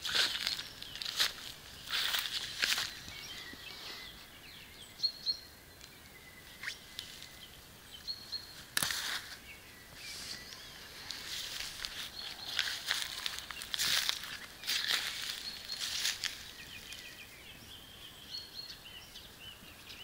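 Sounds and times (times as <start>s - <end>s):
footsteps in grass: 0.0s - 4.3s, 8.5s - 17.4s
high bird chirps: 0.2s - 20.0s.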